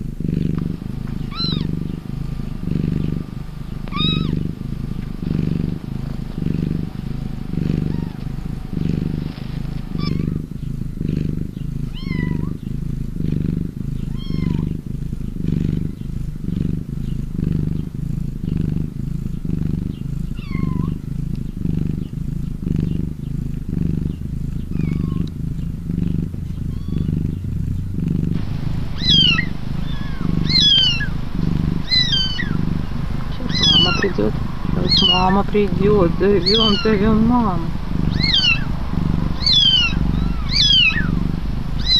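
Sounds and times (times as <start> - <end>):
cat purring: 0.0 - 41.9
thin high calls: 28.4 - 41.9.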